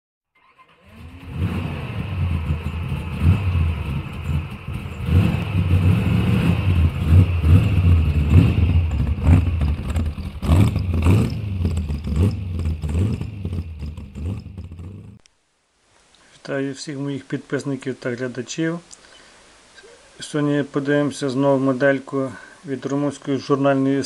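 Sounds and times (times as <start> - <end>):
car engine revving: 0.6 - 15.2.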